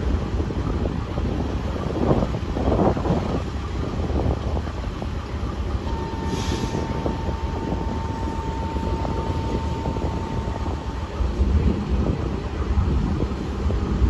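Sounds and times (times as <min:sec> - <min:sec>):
train rumbling on rails: 0:00.0 - 0:14.0.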